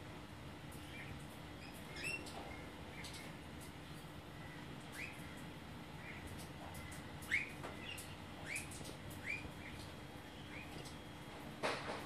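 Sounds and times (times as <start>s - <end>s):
small bird chirping: 0.8s - 3.4s, 4.4s - 5.4s, 6.0s - 11.0s.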